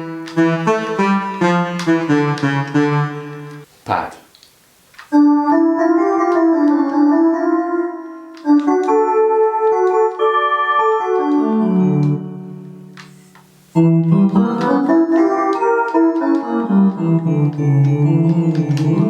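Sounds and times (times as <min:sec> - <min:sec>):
electronic saxophone synth pad: 0:00.0 - 0:03.6.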